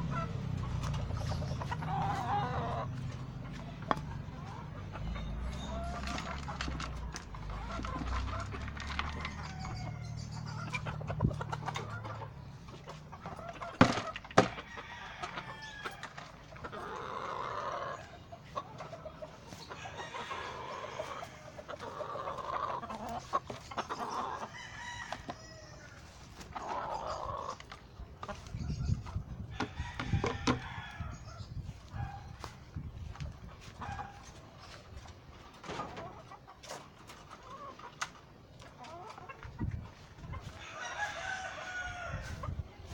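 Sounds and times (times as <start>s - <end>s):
roosters crowing: 0.0s - 36.4s, 38.6s - 42.9s
chickens clucking: 0.0s - 42.9s.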